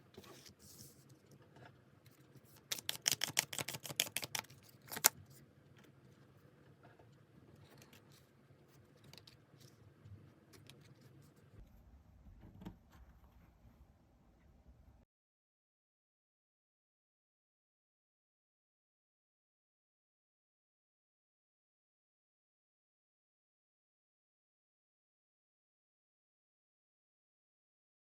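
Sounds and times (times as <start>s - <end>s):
cards being shuffled: 2.5s - 5.2s.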